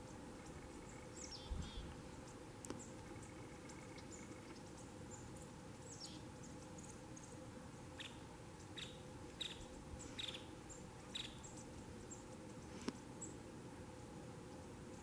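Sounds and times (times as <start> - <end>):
faint steady hiss: 0.0 - 15.0
small birds chip notes: 0.0 - 15.0
faint high ticks: 1.9 - 4.9.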